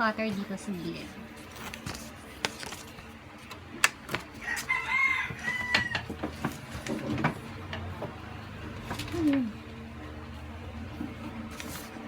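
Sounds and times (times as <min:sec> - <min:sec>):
rooster crowing: 0:04.4 - 0:06.2.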